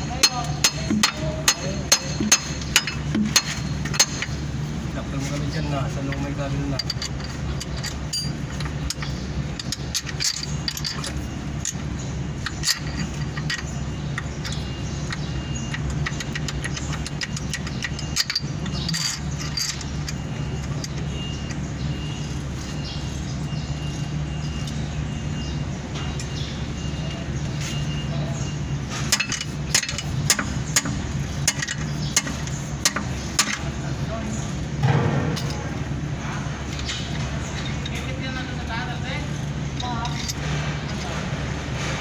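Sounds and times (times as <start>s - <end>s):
metal tools clinking and knocking: 0.0s - 4.5s, 5.2s - 22.9s, 27.0s - 33.9s, 35.2s - 35.9s, 36.6s - 39.0s, 39.7s - 41.3s
low mechanical hum: 0.0s - 42.0s.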